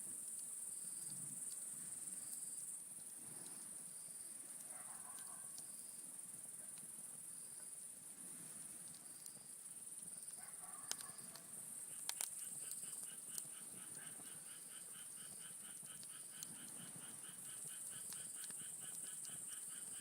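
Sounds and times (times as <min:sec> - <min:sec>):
campfire burning: 0:05.5 - 0:20.0
wood popping in fire: 0:08.8 - 0:20.0
high insect trill: 0:11.0 - 0:20.0.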